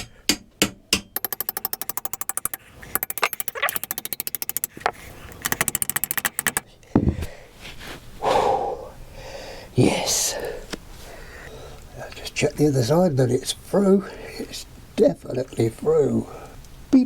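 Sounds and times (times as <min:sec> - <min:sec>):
hammer striking screwdriver: 0:00.0 - 0:06.6
rapid metallic taps: 0:00.0 - 0:06.6
heavy thud: 0:07.0 - 0:07.3.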